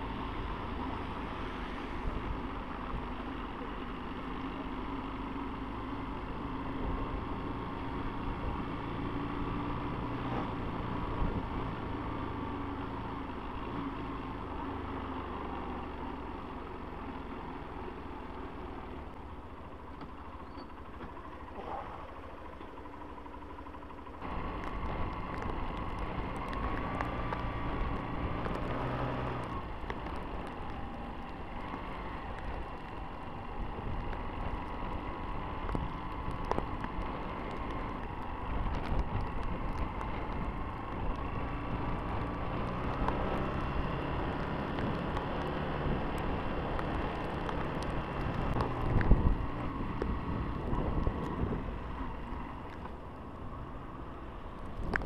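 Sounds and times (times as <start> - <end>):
motorcycle engine running: 19.0 - 55.0.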